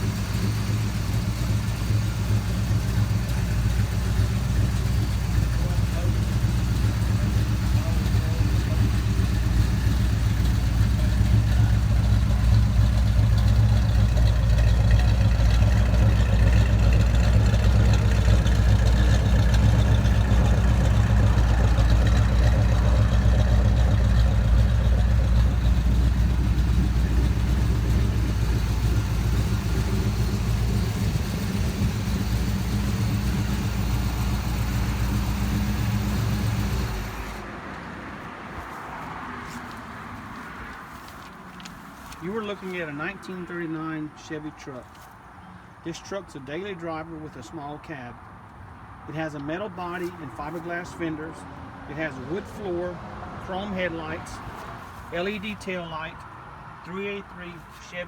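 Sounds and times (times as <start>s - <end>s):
pickup engine idling: 0.0s - 37.6s.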